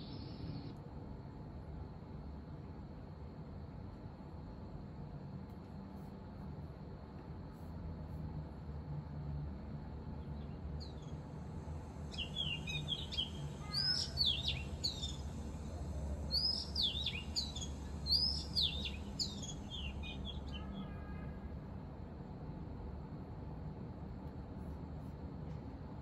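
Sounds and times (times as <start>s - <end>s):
recorded bird song from speaker: 0.0s - 0.7s, 10.2s - 11.2s, 12.1s - 21.2s
low steady hum: 0.0s - 26.0s.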